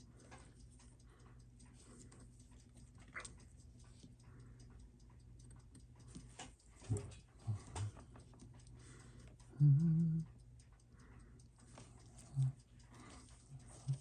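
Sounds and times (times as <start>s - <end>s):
clock ticking: 0.0s - 14.0s
person humming: 9.5s - 10.3s.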